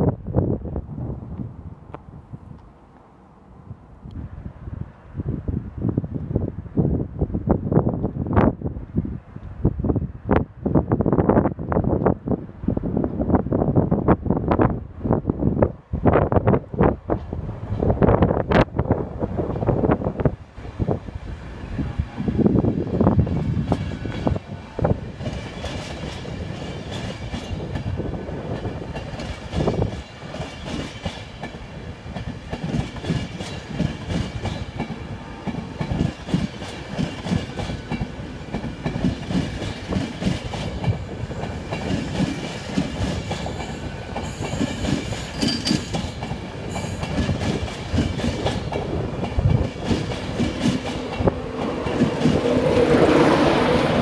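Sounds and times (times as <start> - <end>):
electric locomotive approaching: 0.0 - 54.0
train wheels clicking over rail joints: 25.1 - 52.9.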